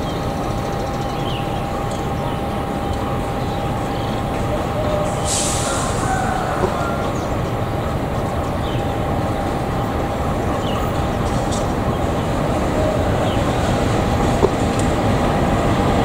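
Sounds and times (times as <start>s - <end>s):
diesel locomotive engine rumbling: 0.0s - 16.0s
brief hiss: 5.2s - 6.1s.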